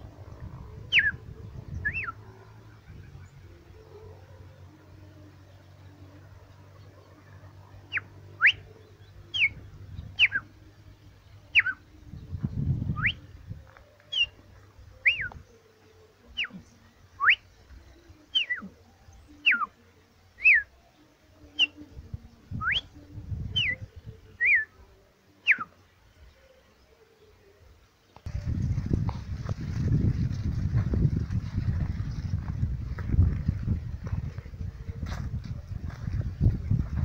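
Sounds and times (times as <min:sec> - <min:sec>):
low rumble: 0:00.0 - 0:15.4, 0:28.3 - 0:37.0
bird whistling: 0:00.9 - 0:01.2, 0:01.8 - 0:02.2, 0:07.9 - 0:08.7, 0:09.3 - 0:09.6, 0:10.2 - 0:10.5, 0:11.5 - 0:11.8, 0:12.9 - 0:13.2, 0:14.1 - 0:14.4, 0:15.0 - 0:15.4, 0:17.2 - 0:17.5, 0:18.3 - 0:18.7, 0:19.4 - 0:19.7, 0:20.4 - 0:20.7, 0:22.6 - 0:22.9, 0:23.5 - 0:24.7, 0:25.4 - 0:25.8.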